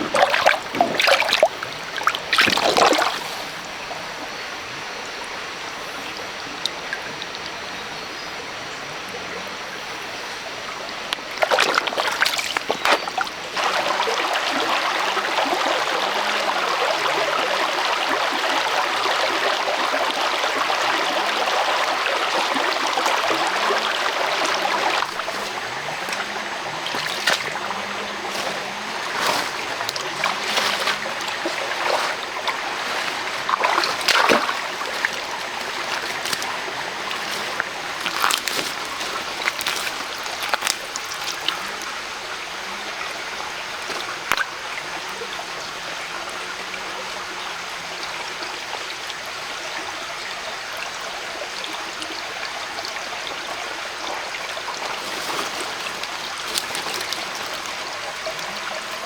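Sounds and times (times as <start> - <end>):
sharp splashes and knocks: 0.0 - 3.6, 11.2 - 16.0, 22.3 - 41.9, 54.8 - 58.6
mountain stream running: 0.0 - 59.0.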